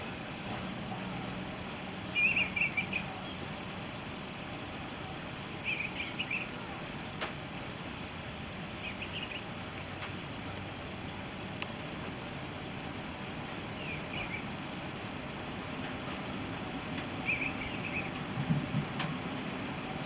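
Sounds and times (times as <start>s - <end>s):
background hiss: 0.0s - 20.0s
bird chirping: 2.0s - 7.2s, 8.7s - 10.3s, 13.6s - 14.7s, 17.1s - 18.2s.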